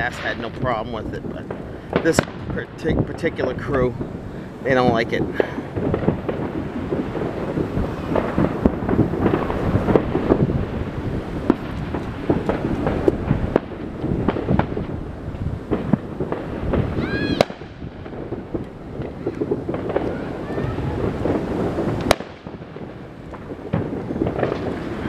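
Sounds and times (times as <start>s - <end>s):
fireworks bangs and crackles: 0.0s - 25.0s
firework whistle: 15.9s - 22.6s.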